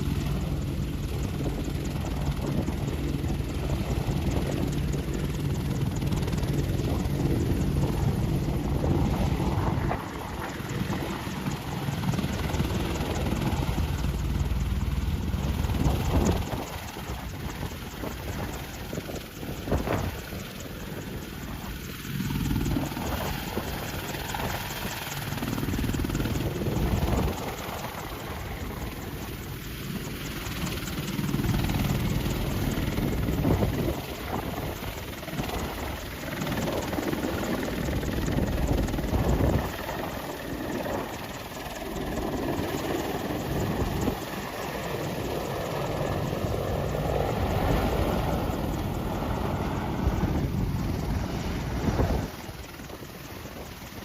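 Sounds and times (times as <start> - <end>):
helicopter rotor and engine: 0.0 - 54.0.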